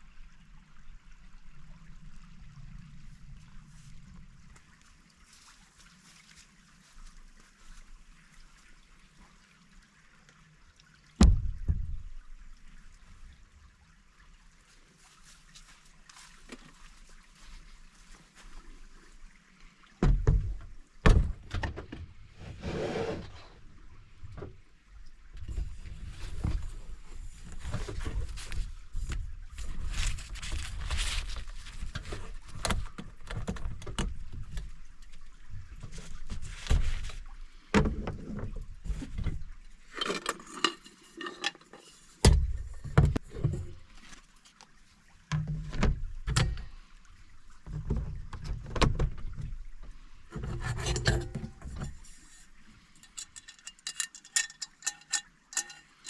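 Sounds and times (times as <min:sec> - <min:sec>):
knocks and thumps: 0:11.2 - 0:12.0, 0:20.0 - 0:22.0
rustling: 0:25.5 - 0:33.8.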